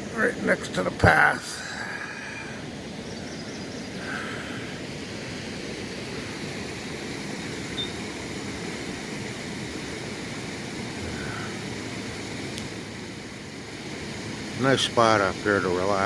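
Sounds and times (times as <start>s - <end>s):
river water rushing: 0.0s - 16.0s
short high chirp: 7.8s - 8.0s.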